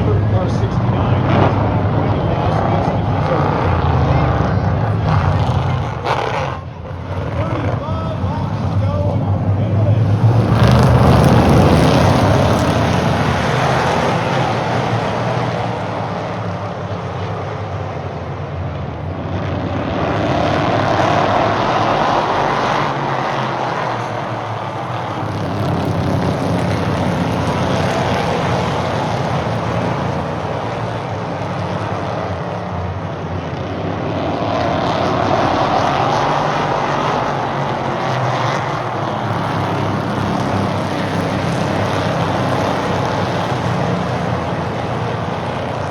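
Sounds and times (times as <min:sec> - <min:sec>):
race car engines passing: 0:00.0 - 0:45.9.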